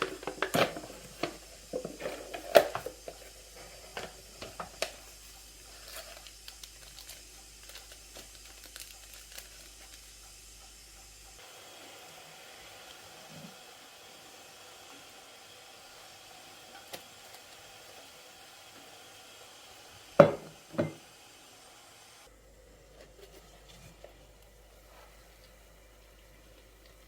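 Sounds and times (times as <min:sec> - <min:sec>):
light sizzling: 0:00.0 - 0:27.0
steady hiss: 0:00.0 - 0:27.0
utensils knocking against a pan: 0:20.2 - 0:21.0.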